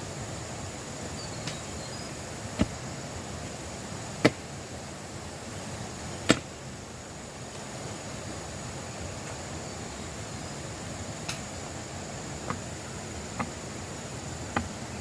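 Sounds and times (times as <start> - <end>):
steady background hiss: 0.0 - 15.0
sharp chopping strikes: 2.6 - 2.8, 4.2 - 4.4, 6.2 - 6.5.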